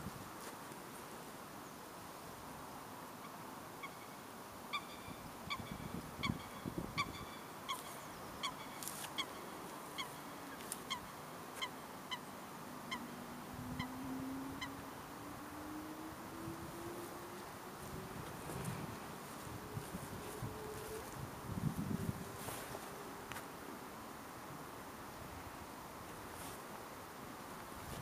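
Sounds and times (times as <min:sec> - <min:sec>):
outdoor hiss: 0:00.0 - 0:28.0
waterbird calling: 0:03.8 - 0:15.0.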